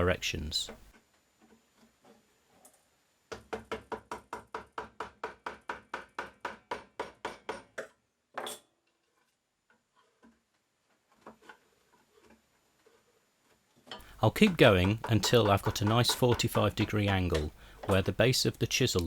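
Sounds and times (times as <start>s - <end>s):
chisel scraping stroke: 14.0s - 19.0s
wood chisel being struck: 14.0s - 19.0s.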